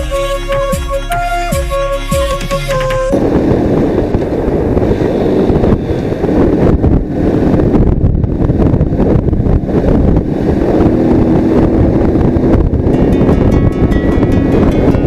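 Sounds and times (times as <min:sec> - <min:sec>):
motorcycle engine: 0:00.0 - 0:15.0
road noise: 0:00.0 - 0:15.0
wind buffeting microphone: 0:03.1 - 0:15.0.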